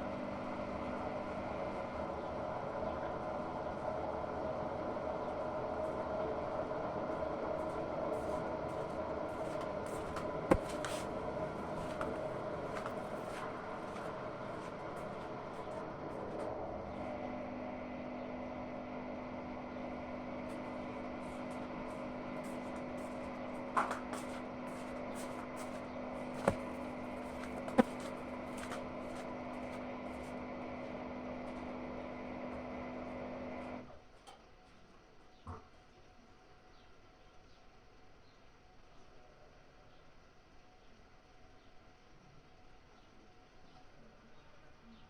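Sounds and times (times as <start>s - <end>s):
washing machine humming: 0.0s - 34.0s.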